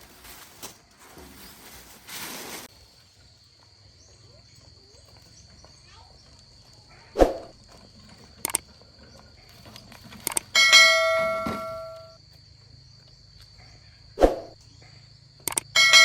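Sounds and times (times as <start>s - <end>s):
ringing strike on steel: 10.6s - 12.2s, 15.8s - 16.0s
metalwork knocks and clicks: 15.5s - 15.7s.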